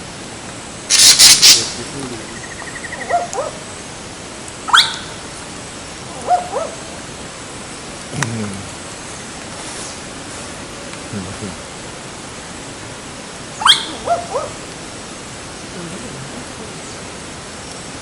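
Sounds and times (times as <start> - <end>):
loud noisy burst: 0.9 - 2.0
falling animal calls: 0.9 - 3.6, 13.6 - 14.6.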